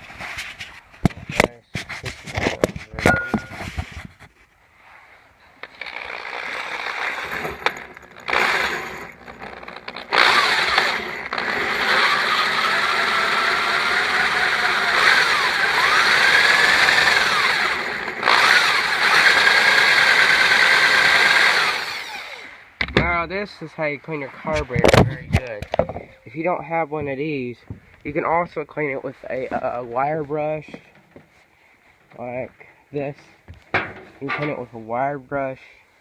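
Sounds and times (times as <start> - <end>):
power tool brush whirring: 5.6 - 22.7.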